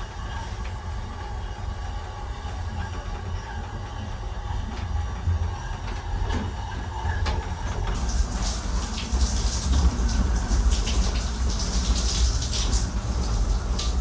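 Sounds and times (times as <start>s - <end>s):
steady hiss: 8.0s - 14.0s.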